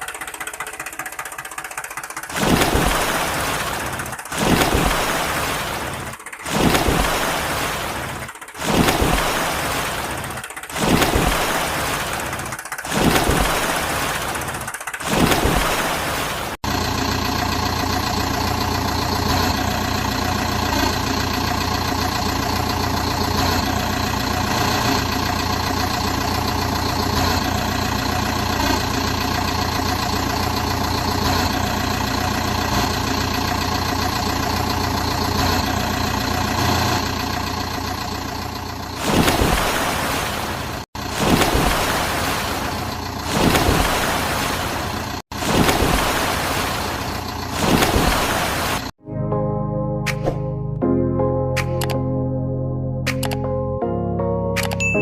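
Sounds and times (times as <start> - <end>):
car engine idling: 0.0 - 8.6, 9.2 - 10.8, 15.9 - 41.2, 41.8 - 49.0.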